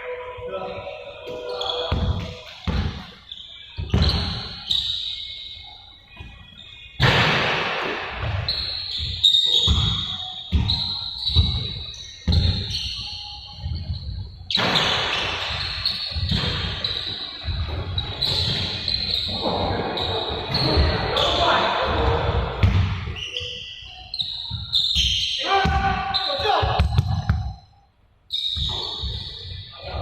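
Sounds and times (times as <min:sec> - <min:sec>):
basketballs bouncing on court: 0:01.9 - 0:03.1, 0:07.0 - 0:12.8, 0:14.5 - 0:18.8, 0:20.5 - 0:23.1, 0:24.5 - 0:27.6.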